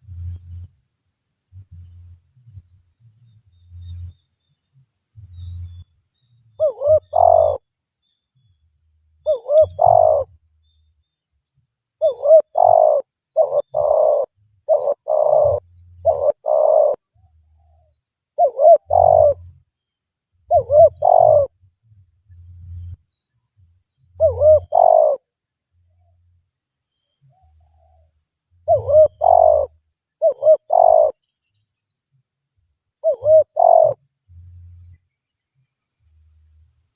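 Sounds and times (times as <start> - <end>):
dove cooing: 6.6 - 7.6, 9.2 - 10.4, 12.0 - 17.0, 18.4 - 19.5, 20.5 - 21.5, 24.2 - 25.3, 28.6 - 31.2, 33.0 - 34.0.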